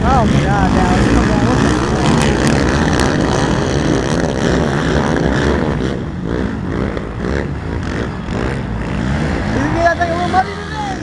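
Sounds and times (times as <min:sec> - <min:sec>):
quad engines revving: 0:00.0 - 0:11.0.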